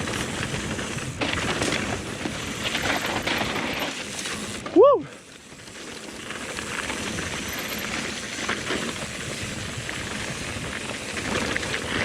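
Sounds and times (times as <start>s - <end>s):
bike rattles and clicks: 0.0s - 12.0s
wind and tyre noise: 0.0s - 12.0s.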